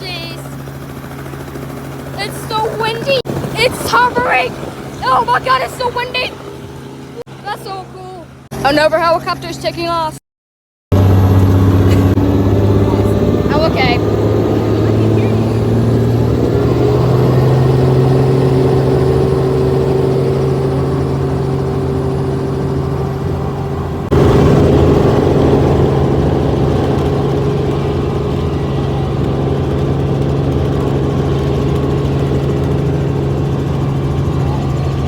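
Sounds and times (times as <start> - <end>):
helicopter turbine and rotor drone: 0.0 - 10.2, 10.9 - 35.0.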